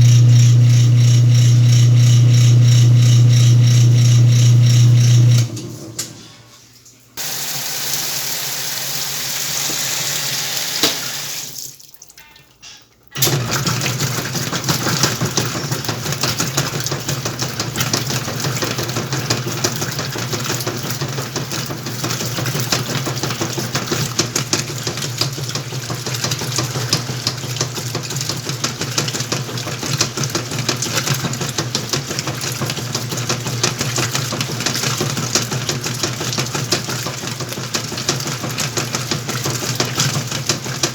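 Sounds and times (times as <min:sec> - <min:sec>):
washing machine motor churning: 0:00.0 - 0:06.5, 0:07.2 - 0:11.7, 0:13.1 - 0:40.9
water hissing into tub: 0:07.2 - 0:11.8.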